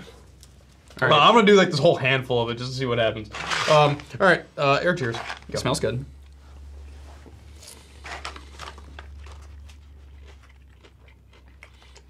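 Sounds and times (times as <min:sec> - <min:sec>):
low steady hum: 0:00.0 - 0:12.0
popcorn crunching and chewing: 0:07.5 - 0:12.0.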